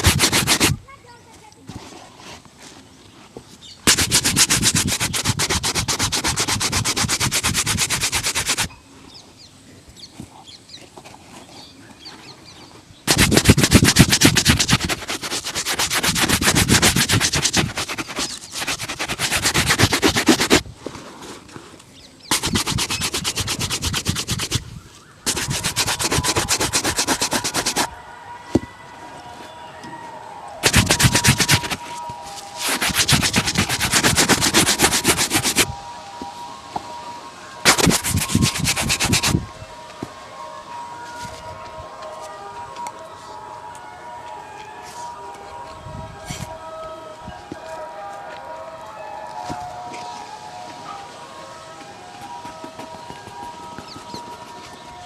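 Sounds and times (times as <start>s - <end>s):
brush rubbing shoe leather: 0.0s - 0.8s, 3.9s - 8.7s, 13.1s - 20.6s, 22.3s - 27.9s, 30.6s - 35.7s, 37.6s - 39.4s, 52.2s - 54.9s.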